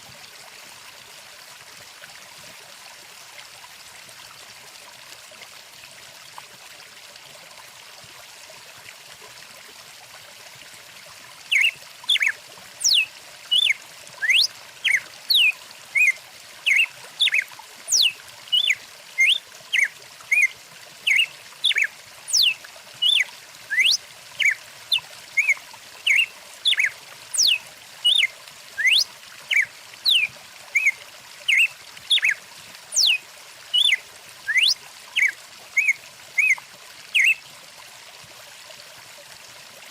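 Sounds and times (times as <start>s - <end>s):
stream water running: 0.0s - 39.9s
bird chirping and whistling: 11.5s - 20.5s, 21.1s - 24.6s, 25.4s - 32.4s, 33.0s - 33.2s, 33.8s - 36.6s, 37.2s - 37.4s.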